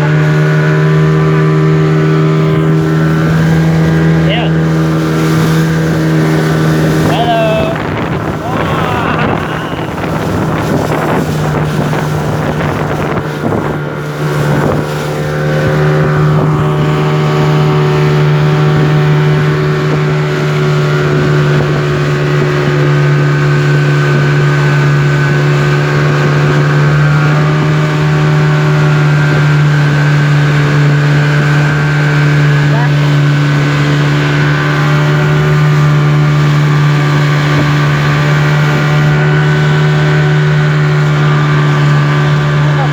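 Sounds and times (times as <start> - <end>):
speedboat engine running: 0.0 - 42.9
wind buffeting microphone: 0.0 - 42.9.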